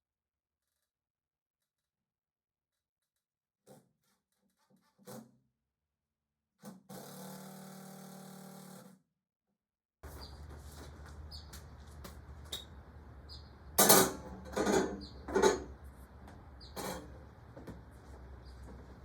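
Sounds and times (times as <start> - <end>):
steady low hum: 10.0 - 19.0.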